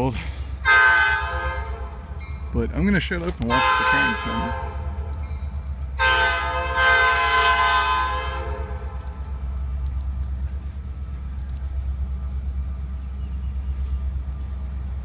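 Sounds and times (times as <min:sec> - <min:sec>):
train rumble: 0:00.0 - 0:15.0
train horn blasts: 0:00.6 - 0:02.1, 0:03.5 - 0:05.2, 0:06.0 - 0:09.0.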